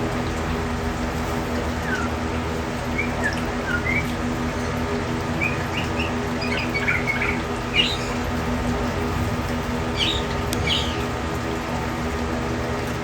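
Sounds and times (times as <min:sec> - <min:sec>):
background hum and hiss: 0:00.0 - 0:13.0
small birds chirping: 0:01.8 - 0:11.4.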